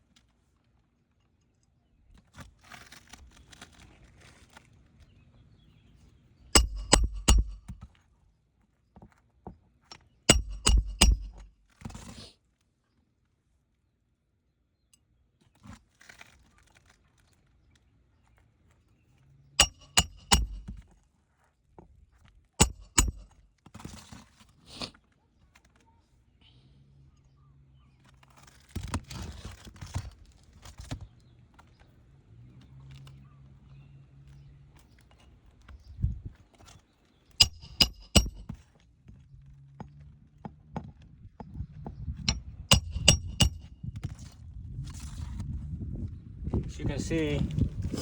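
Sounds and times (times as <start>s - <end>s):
hammer striking nails: 6.6s - 7.8s, 10.3s - 11.5s, 19.6s - 20.8s, 22.6s - 23.4s, 37.4s - 38.5s, 42.3s - 43.7s.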